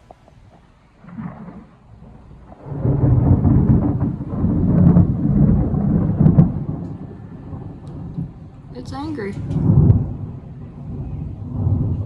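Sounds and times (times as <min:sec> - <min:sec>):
thunder rumbling: 0:00.0 - 0:12.0.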